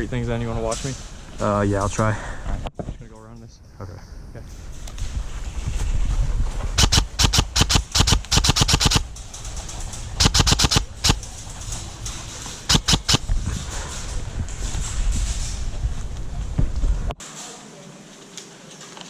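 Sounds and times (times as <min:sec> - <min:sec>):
wind rumble on microphone: 0:00.0 - 0:07.6, 0:09.0 - 0:17.2
airsoft gun firing bursts: 0:06.8 - 0:09.1, 0:10.2 - 0:11.2, 0:12.7 - 0:13.3.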